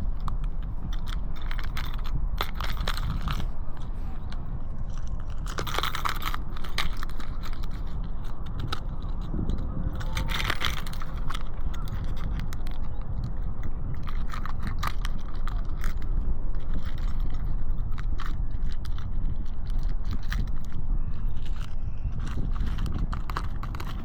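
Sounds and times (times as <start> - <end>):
microphone handling clicks and scrapes: 0.0 - 24.0
wind buffeting microphone: 0.0 - 24.0.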